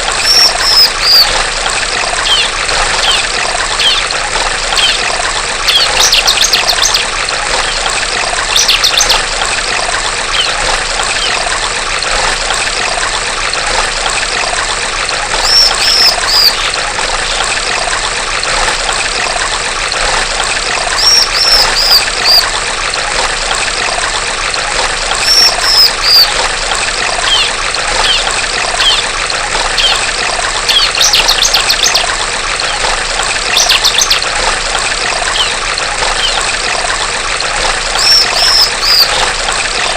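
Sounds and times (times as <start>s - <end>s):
stream water trickling: 0.0s - 39.9s
bird chirping: 0.2s - 1.3s, 2.2s - 4.0s, 11.2s - 11.4s, 15.4s - 16.7s, 21.0s - 22.4s, 25.2s - 26.3s, 27.2s - 29.0s, 29.8s - 30.0s, 30.7s - 32.1s, 33.5s - 34.2s, 35.3s - 35.6s, 36.2s - 36.4s, 38.0s - 39.2s.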